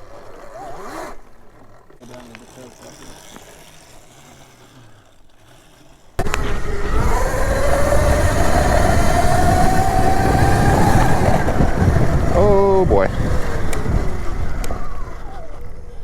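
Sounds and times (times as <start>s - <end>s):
electric dirt bike motor whining: 0.0s - 16.0s
rushing riding noise: 6.2s - 16.0s.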